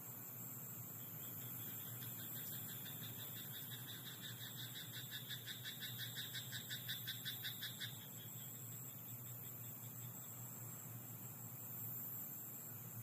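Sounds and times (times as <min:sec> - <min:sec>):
frog croaking: 0:01.2 - 0:08.6.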